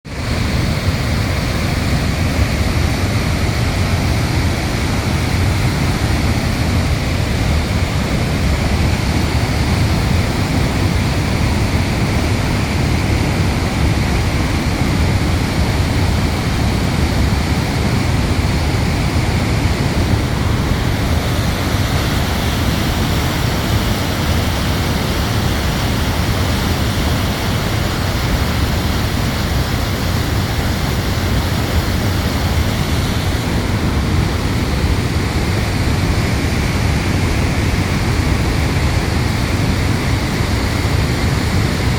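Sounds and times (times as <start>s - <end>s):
waterfall rushing: 0.1s - 41.9s.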